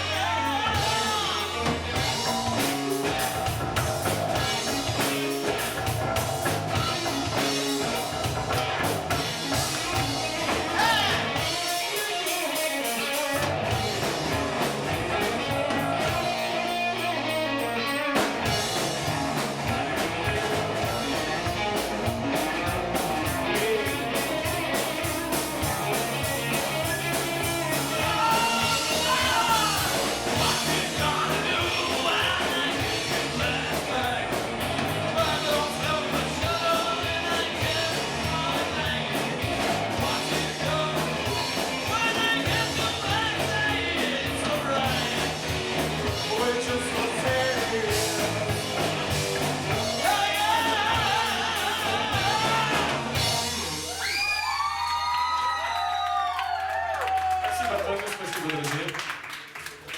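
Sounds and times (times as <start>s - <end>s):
person singing: 0.0s - 3.6s, 23.2s - 48.9s, 49.7s - 53.5s
drums keeping a steady beat: 0.0s - 56.3s
guitar: 0.0s - 59.9s.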